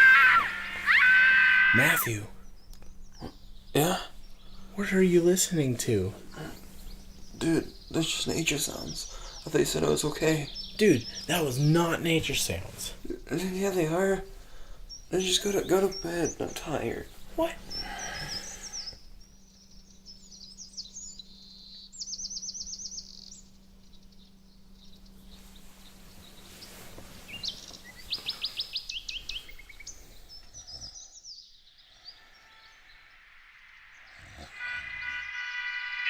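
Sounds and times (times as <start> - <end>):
birds chirping and trilling: 0.0 - 36.0
faint steady hum: 0.0 - 36.0
loud multi-tone sound: 32.1 - 36.0.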